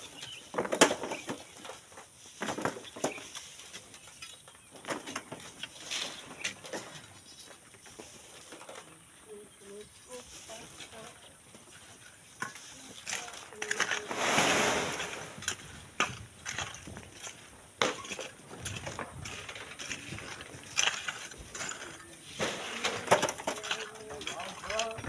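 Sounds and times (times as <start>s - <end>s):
tools scraping sand and gravel: 0.0s - 25.0s
sand sliding: 10.0s - 24.9s.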